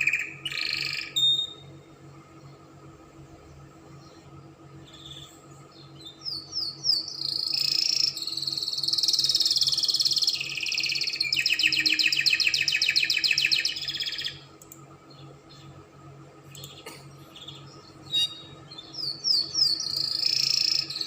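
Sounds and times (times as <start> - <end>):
canary singing trills: 0.0 - 1.8, 4.0 - 14.5, 16.5 - 21.0.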